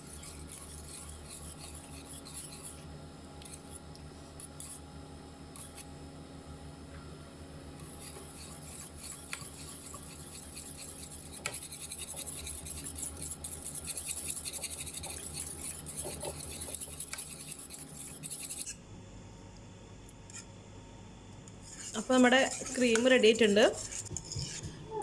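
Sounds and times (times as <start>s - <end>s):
whisk scraping a pan: 0.0s - 3.8s, 7.8s - 18.7s, 21.6s - 24.8s.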